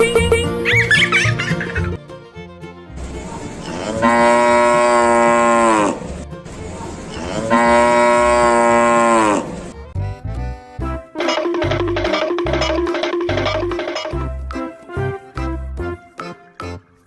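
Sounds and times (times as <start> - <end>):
cow mooing: 3.6 - 6.1, 7.2 - 9.6.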